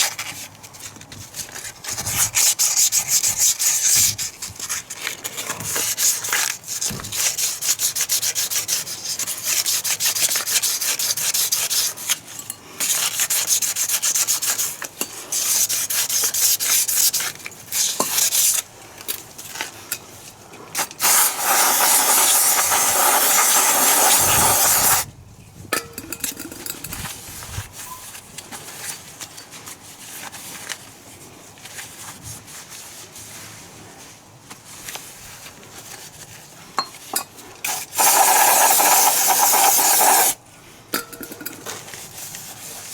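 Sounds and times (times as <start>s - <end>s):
hand scraping a part: 20.8s - 25.1s, 37.7s - 40.4s
steady hiss: 20.8s - 25.1s, 37.7s - 40.4s.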